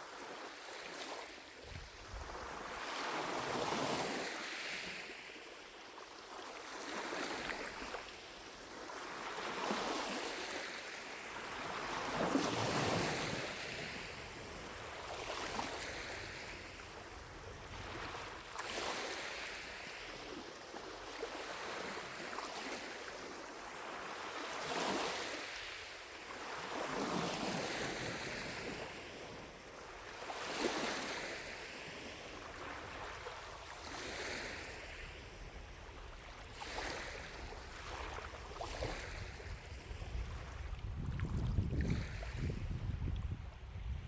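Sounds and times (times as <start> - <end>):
waves lapping at shore: 0.0 - 43.9
wind rumble on microphone: 1.6 - 2.8, 35.0 - 44.0.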